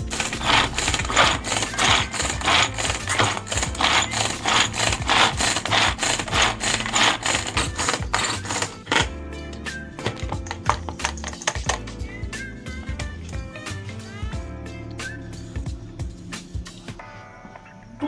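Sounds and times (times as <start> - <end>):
mini chopper whirring: 0.0 - 9.2
background music: 0.0 - 18.0.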